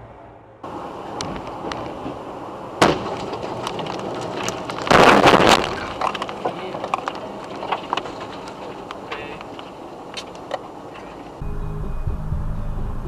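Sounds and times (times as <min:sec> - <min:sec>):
road noise: 0:00.0 - 0:13.0
car crash with breaking glass: 0:02.8 - 0:06.5
debris clicking: 0:02.8 - 0:11.1.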